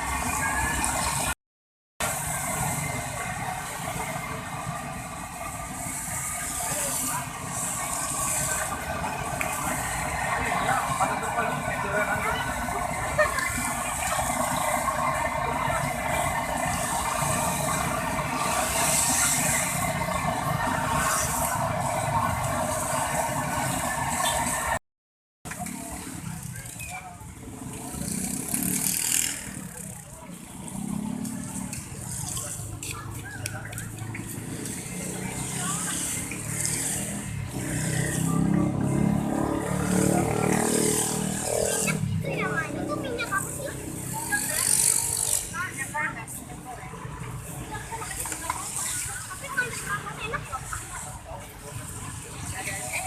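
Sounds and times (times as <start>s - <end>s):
low traffic rumble: 0.0s - 1.4s, 2.0s - 24.8s, 25.5s - 53.0s
vehicle engine running: 2.0s - 24.8s.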